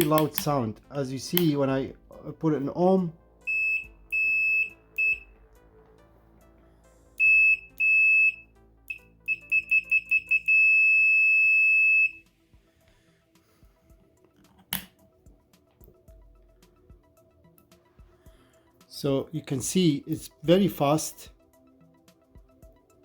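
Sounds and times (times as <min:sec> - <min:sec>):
sharp click: 0:00.0 - 0:00.6
multimeter beeping: 0:03.5 - 0:05.3, 0:07.2 - 0:12.2.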